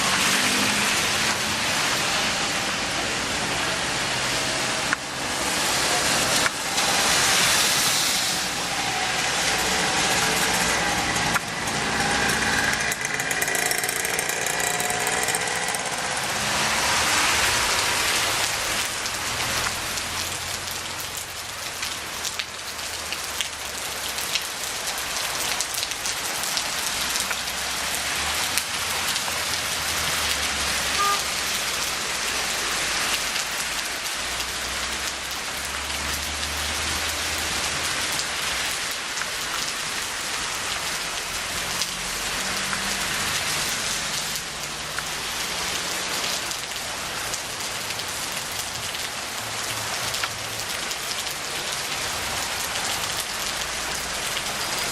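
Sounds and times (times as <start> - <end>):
vehicle passing: 0.0 - 20.7
heavy rain falling: 0.0 - 54.9.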